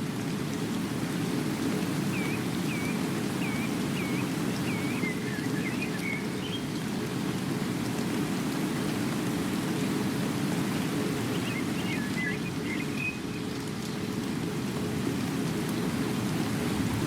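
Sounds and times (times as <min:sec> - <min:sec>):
steady rain: 0:00.0 - 0:17.0
bird calling: 0:11.3 - 0:13.3.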